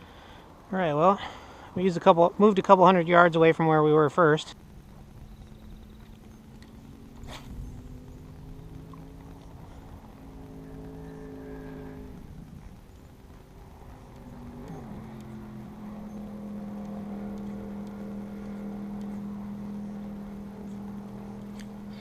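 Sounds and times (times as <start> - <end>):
electric boat motor humming: 4.6 - 22.0.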